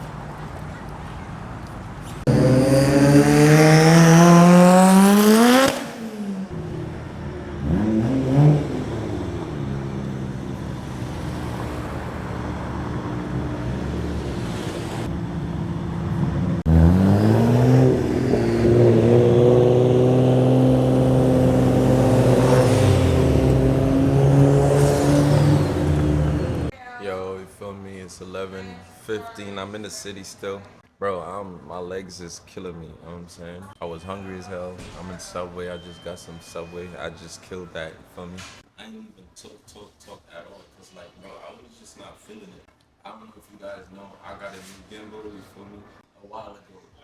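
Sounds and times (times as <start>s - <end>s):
car engine revving: 2.2s - 26.7s.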